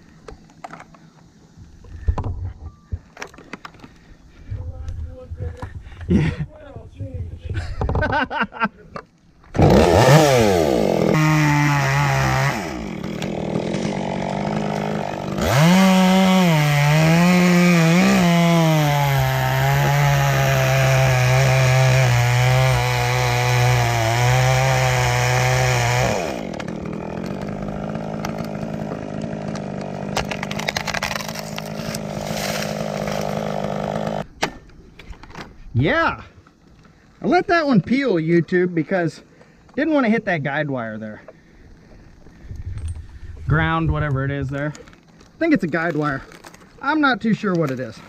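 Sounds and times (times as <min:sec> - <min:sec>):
chainsaw cutting and idling: 0:09.5 - 0:34.3, 0:41.6 - 0:42.5.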